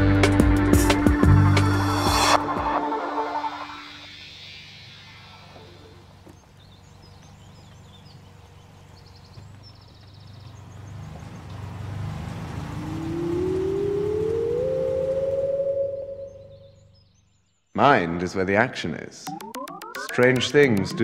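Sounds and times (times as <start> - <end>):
faint bird chirps: 4.0 - 11.4, 12.6 - 17.8
car engine running: 4.6 - 14.3
rising pitch tone: 12.4 - 17.0, 19.2 - 21.0.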